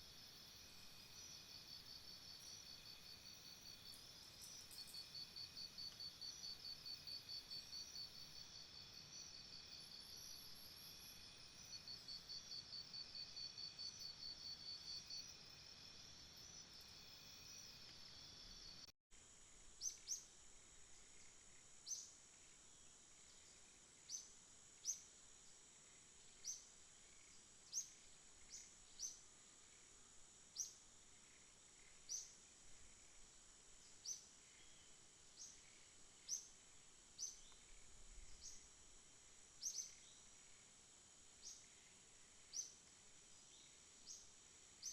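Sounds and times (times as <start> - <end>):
high insect whine: 0.0 - 18.9, 19.8 - 44.9
insects trilling in chorus: 0.0 - 18.9, 30.6 - 40.8.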